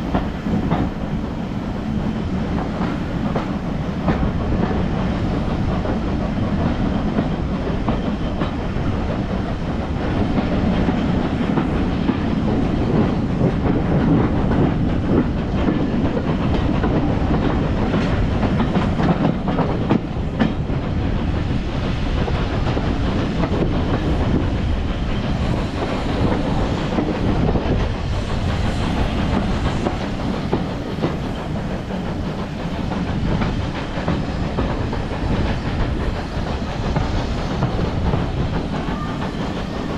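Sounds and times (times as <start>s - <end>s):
train rolling rumble: 0.0s - 39.9s
wheels clacking over rail joints: 2.1s - 39.9s
faint hiss of steam: 23.8s - 39.9s.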